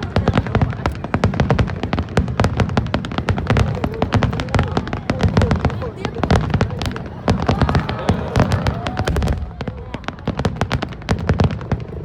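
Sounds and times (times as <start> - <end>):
fireworks crackling pops: 0.0 - 12.0
fireworks deep booms: 0.0 - 12.0.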